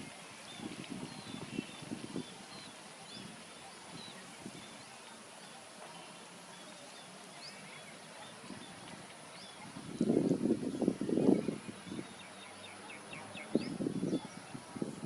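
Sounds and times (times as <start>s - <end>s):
small birds chirping: 0.0s - 15.0s
steady high hiss: 0.0s - 15.0s.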